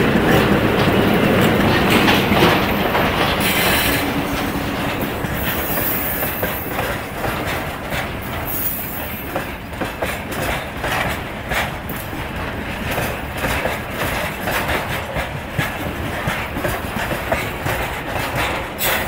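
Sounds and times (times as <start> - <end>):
locomotive engine: 0.0 - 9.2.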